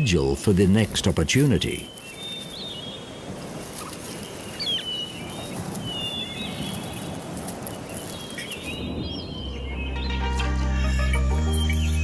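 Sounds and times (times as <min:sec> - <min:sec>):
small birds chirping: 0:00.1 - 0:12.0.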